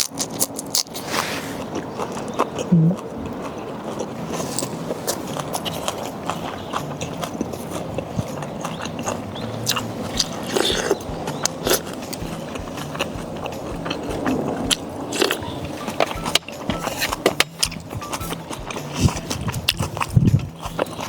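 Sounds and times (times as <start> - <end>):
person chewing and biting: 0.0 - 21.0
sharp clicks and smacks: 8.1 - 21.0.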